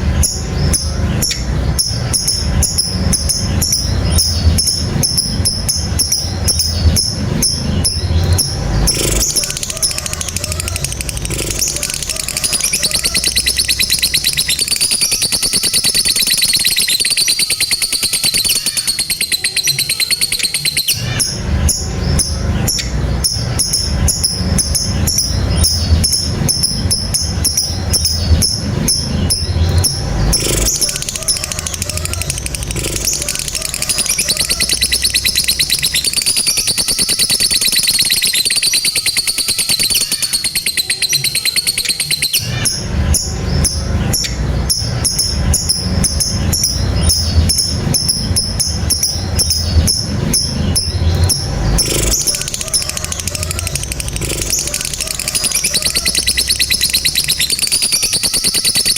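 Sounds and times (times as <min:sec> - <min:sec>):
lovebird chattering trill: 0:00.0 - 0:58.9
low rumble: 0:21.0 - 0:36.0, 0:42.4 - 0:55.9.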